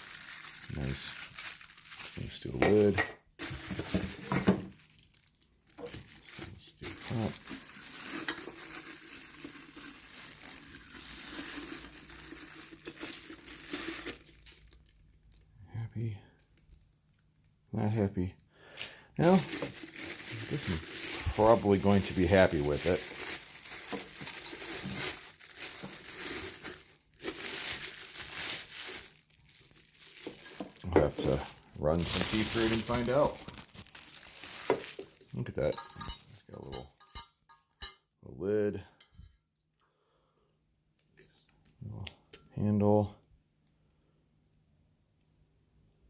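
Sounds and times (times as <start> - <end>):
packaging rustling and crinkling: 0.0 - 15.5, 19.2 - 36.7.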